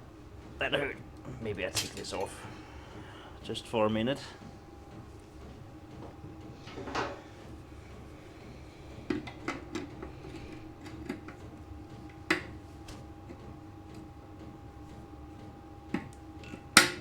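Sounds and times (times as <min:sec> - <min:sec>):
faint steady hum: 0:00.0 - 0:17.0
metal tools clinking on workbench: 0:01.7 - 0:02.4.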